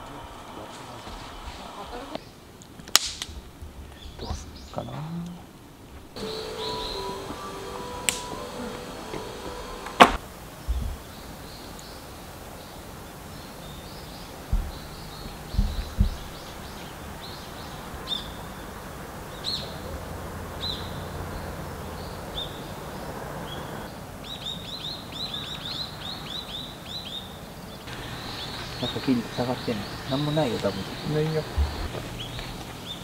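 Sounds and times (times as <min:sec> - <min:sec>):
small birds chirping: 0:03.9 - 0:33.0
dull low thumps: 0:14.5 - 0:16.6, 0:30.8 - 0:32.6.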